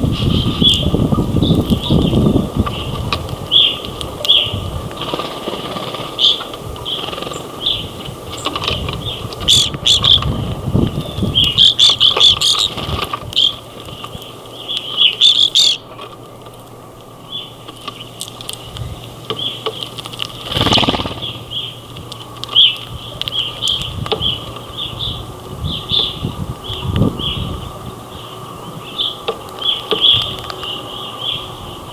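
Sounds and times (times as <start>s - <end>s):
finches chirping: 0.0s - 31.9s
low rumble: 16.7s - 31.9s.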